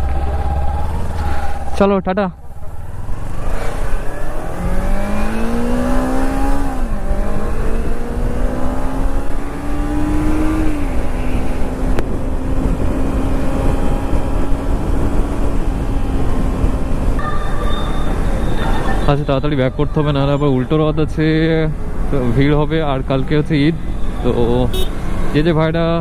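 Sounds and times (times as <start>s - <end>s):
motorcycle engine accelerating: 0.0s - 17.2s
wind rumbling on microphone: 2.4s - 25.4s.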